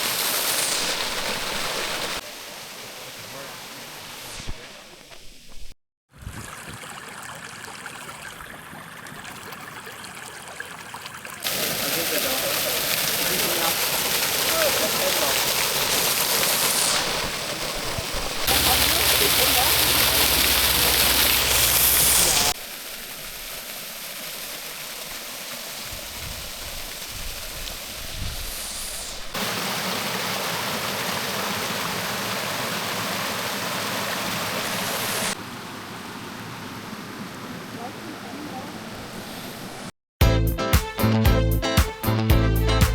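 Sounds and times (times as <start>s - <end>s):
waterfall rushing: 0.0s - 5.0s, 11.4s - 25.7s, 26.8s - 39.9s.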